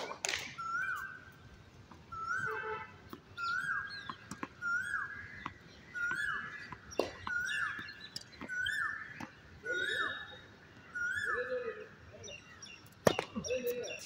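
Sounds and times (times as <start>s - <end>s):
tennis ball bouncing on court: 0.0s - 0.5s, 3.1s - 9.4s, 13.0s - 13.5s
bird calling: 0.5s - 1.4s, 2.1s - 14.0s.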